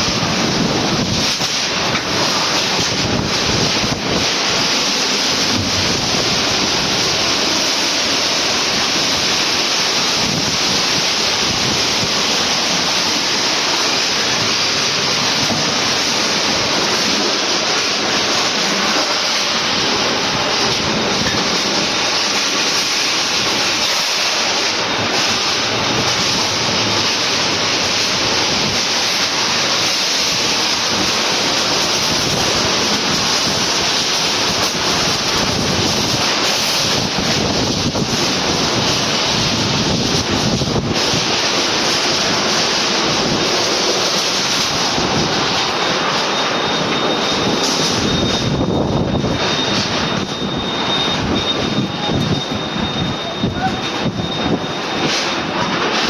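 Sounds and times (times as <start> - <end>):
storm wind blowing hard: 0.0 - 56.0.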